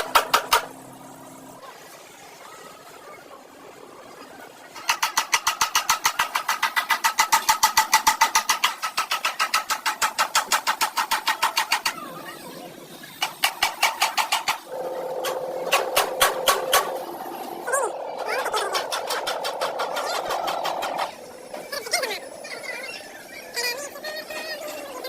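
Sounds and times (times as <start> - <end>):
steady tone: 14.7 - 23.6.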